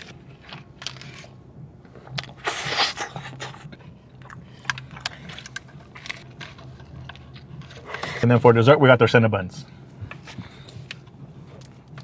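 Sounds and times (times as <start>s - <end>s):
mouth clicks and chewing: 1.9s - 8.2s
crunchy bite: 2.2s - 3.6s.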